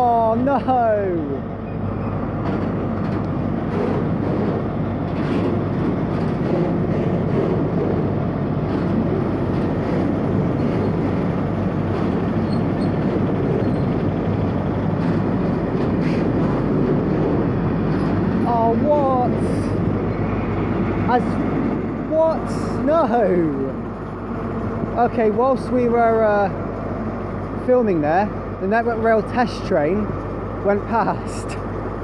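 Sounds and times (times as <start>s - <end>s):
freight train wheels on rails: 0.0s - 32.0s.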